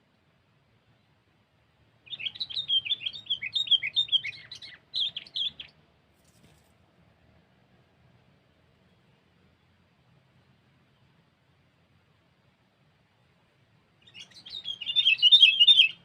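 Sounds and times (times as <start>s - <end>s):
bird singing chirpy warbling notes: 2.1s - 5.7s, 14.1s - 16.0s.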